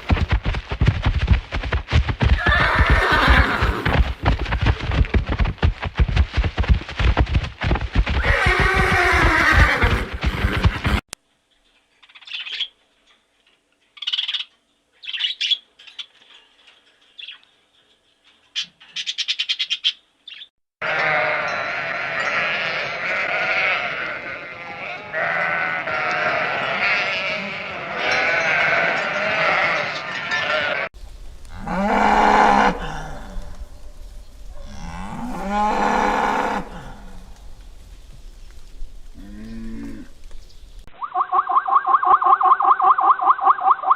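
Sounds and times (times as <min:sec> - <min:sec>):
sheep bleating: 0:20.8 - 0:30.9.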